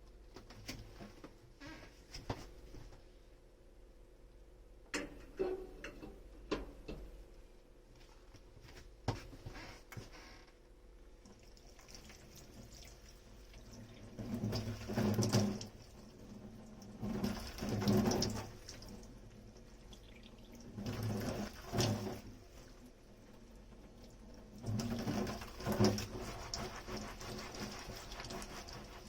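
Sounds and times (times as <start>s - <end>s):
tap water running over dishes: 11.2s - 29.0s.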